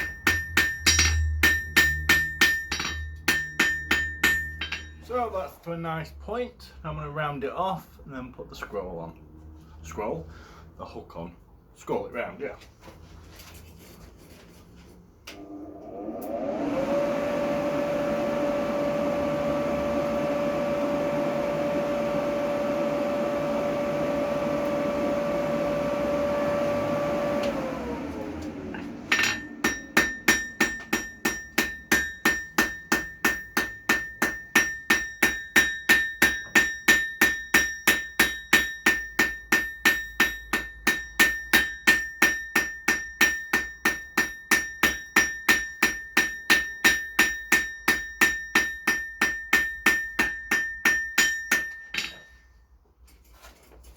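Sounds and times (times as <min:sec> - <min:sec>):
hammer striking steel on anvil: 0:00.0 - 0:05.3, 0:29.1 - 0:52.5.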